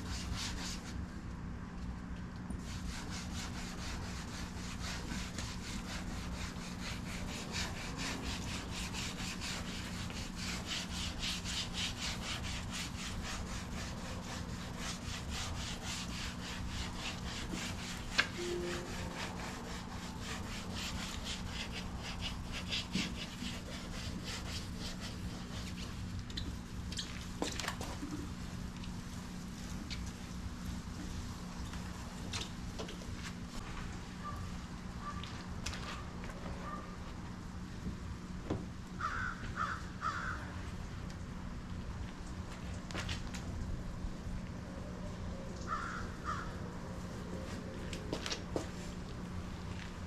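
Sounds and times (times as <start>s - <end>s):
sandpaper scraping by hand: 2.6s - 26.0s.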